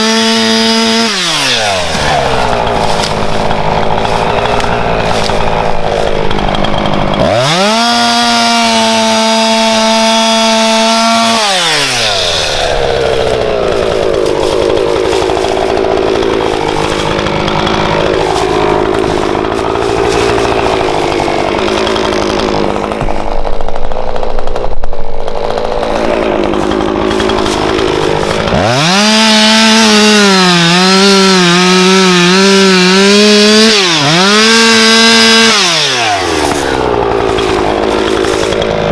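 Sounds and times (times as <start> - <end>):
chainsaw cutting a log: 0.0 - 38.9.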